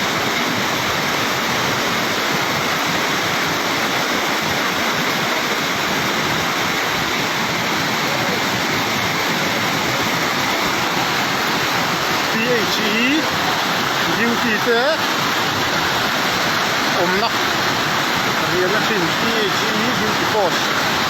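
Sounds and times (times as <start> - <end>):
floodwater rushing: 0.0 - 21.0.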